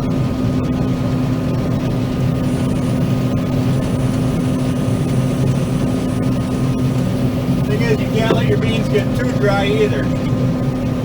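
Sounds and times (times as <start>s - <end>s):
combine harvester engine drone: 0.0s - 11.0s.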